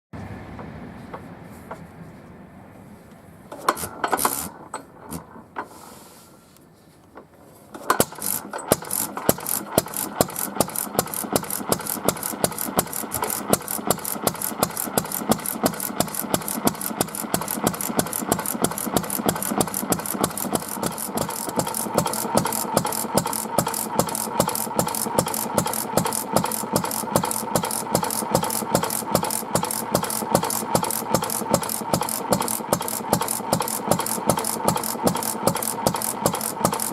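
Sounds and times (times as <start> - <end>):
engine knocks and clatters: 0.2 - 2.3, 3.1 - 5.8, 7.1 - 36.9
engine mechanical rattle: 3.1 - 6.0, 7.0 - 36.9
stationary engine running: 7.8 - 36.9.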